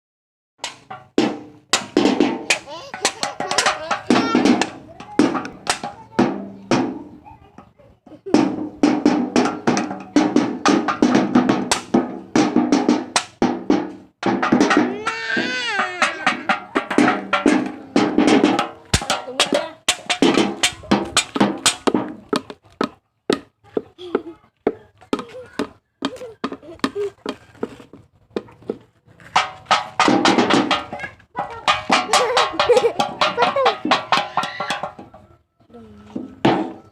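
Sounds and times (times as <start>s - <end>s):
rapid percussive strikes: 0.6s - 7.1s, 8.3s - 22.2s, 29.4s - 35.2s.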